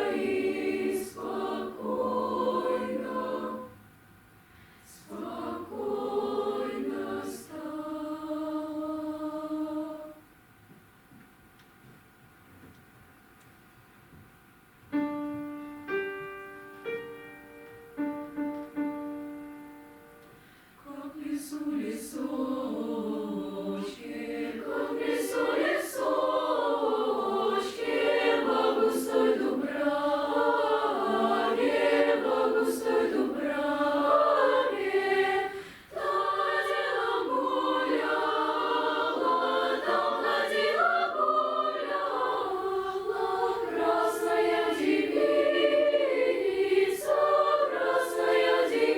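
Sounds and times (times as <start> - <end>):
children's choir singing: 0.0 - 3.9, 4.9 - 10.3, 20.8 - 48.9.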